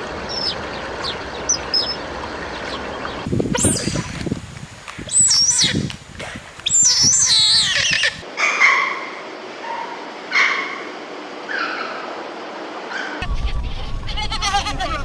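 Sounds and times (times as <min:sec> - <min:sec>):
faint animal calls: 0:06.7 - 0:12.3
animal cries: 0:06.8 - 0:10.9, 0:11.5 - 0:12.2.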